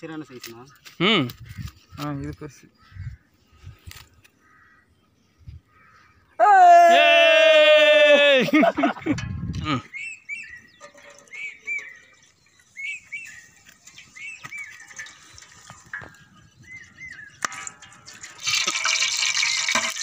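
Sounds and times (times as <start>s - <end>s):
small bird chirping: 9.9s - 17.5s.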